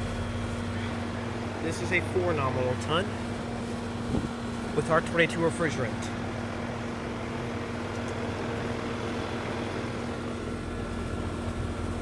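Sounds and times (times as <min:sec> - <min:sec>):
air conditioner fan rush: 0:00.0 - 0:12.0
compressor hum: 0:00.0 - 0:12.0.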